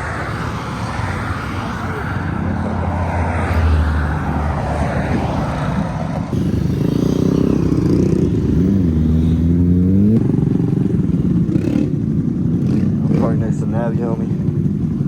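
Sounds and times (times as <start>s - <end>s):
engine revving: 0.0s - 10.6s
mini-bike engines running: 5.2s - 15.0s.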